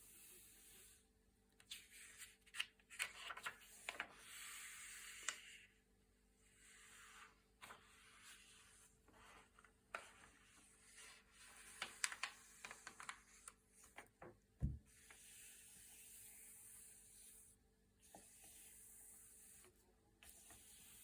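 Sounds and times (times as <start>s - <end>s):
paper pages turning: 1.7s - 4.1s, 11.4s - 14.0s.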